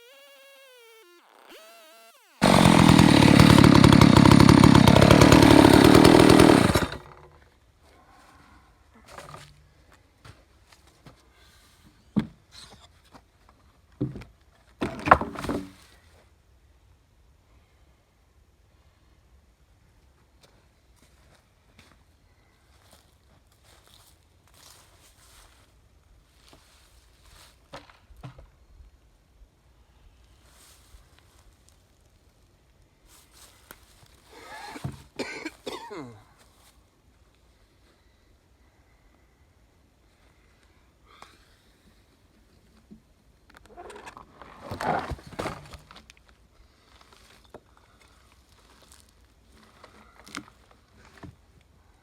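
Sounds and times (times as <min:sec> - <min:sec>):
person clearing throat: 0:34.4 - 0:36.3.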